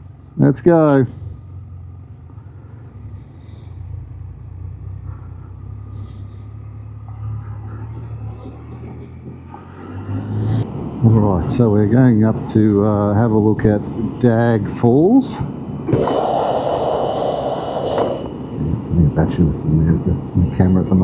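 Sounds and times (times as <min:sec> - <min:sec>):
motorcycle engine pulling away: 0:01.0 - 0:10.6.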